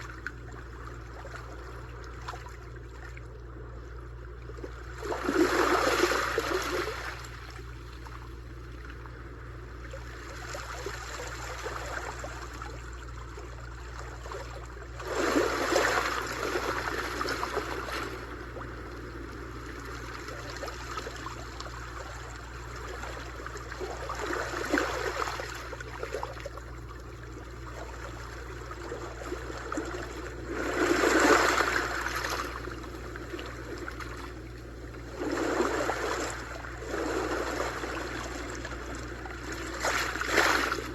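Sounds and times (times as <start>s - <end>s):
sea waves breaking on shore: 4.6s - 8.4s, 9.8s - 12.9s, 14.0s - 40.9s.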